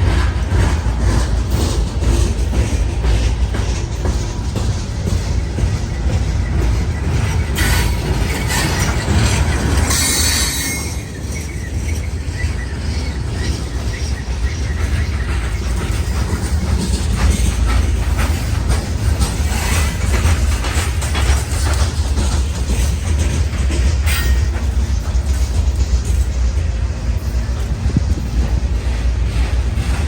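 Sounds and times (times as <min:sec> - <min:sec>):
train rumbling and clacking: 0:00.0 - 0:30.0
wheel squeal: 0:05.0 - 0:26.2.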